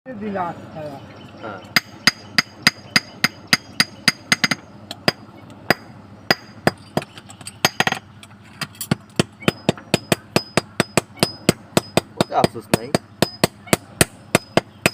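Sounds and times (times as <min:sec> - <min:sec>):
hammer striking metal on anvil: 0:01.8 - 0:06.8, 0:08.9 - 0:14.9.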